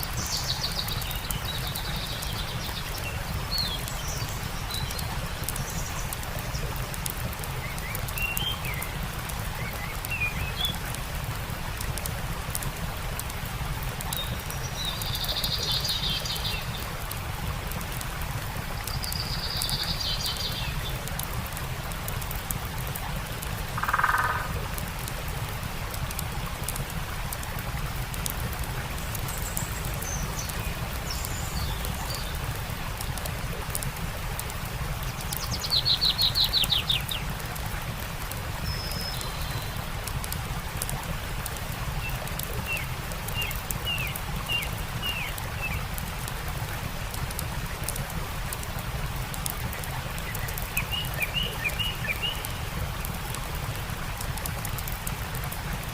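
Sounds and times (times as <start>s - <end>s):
songbirds calling: 0.0s - 10.9s, 14.1s - 16.9s, 23.7s - 24.8s, 35.0s - 37.4s, 38.6s - 39.9s, 42.0s - 46.0s, 50.2s - 52.7s
campfire crackles: 0.0s - 55.9s
flowing water: 0.0s - 55.9s.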